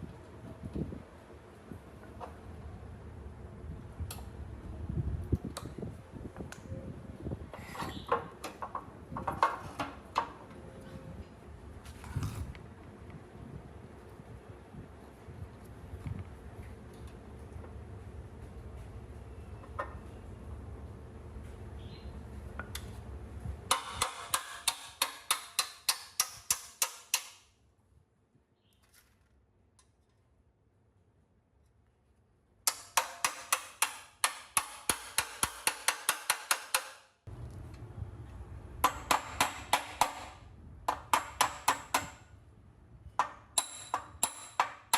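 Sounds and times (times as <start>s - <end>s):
sharp knocks and clinks: 43.2s - 44.9s.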